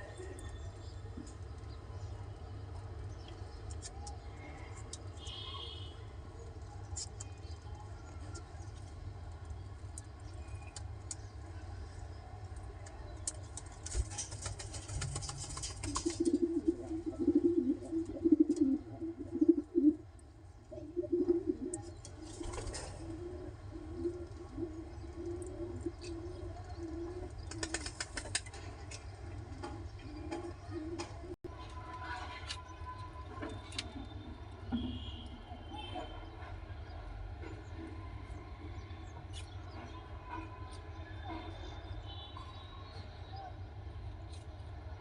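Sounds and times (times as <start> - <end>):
wings flapping: 13.6 - 16.4, 27.5 - 28.6
pigeons cooing: 15.0 - 20.1, 20.7 - 28.4.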